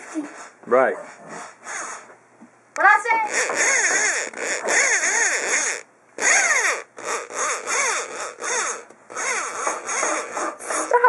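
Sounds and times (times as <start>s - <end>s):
hand saw cutting wood: 1.3s - 2.1s, 3.3s - 11.0s.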